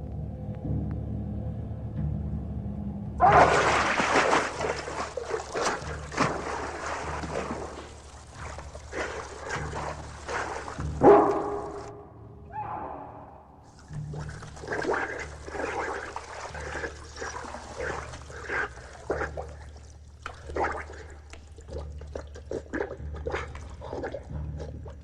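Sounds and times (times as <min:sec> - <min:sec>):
dog splashing in water: 0:03.2 - 0:11.9, 0:13.7 - 0:24.3.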